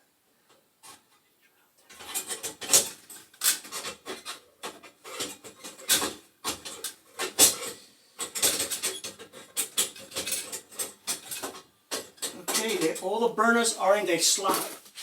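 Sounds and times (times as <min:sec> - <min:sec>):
metal knocks and clinks: 0:04.7 - 0:13.1.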